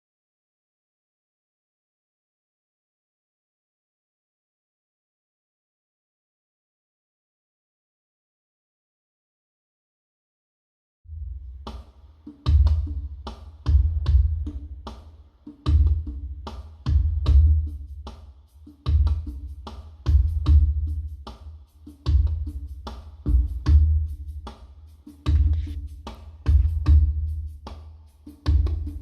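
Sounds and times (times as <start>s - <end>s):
slow heavy drum beat: 11.3s - 29.0s
sharp percussion strokes: 14.5s - 29.0s.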